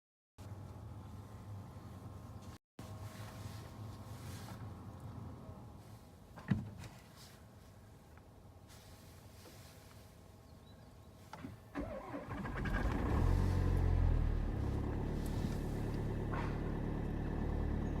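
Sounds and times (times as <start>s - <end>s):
engine cranking: 11.8s - 17.0s
diesel engine idling: 11.8s - 18.0s.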